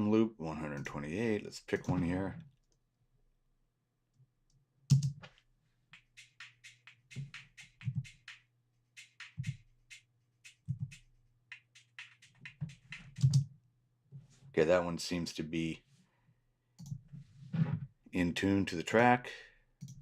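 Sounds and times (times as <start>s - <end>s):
electronic drum loops: 5.9s - 13.4s.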